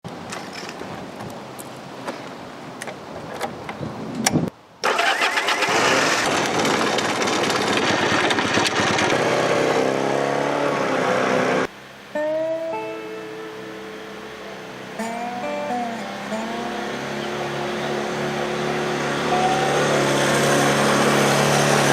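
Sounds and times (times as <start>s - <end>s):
motorcycle engine running: 6.0s - 10.1s, 16.4s - 21.9s
acoustic guitar music: 12.1s - 21.9s.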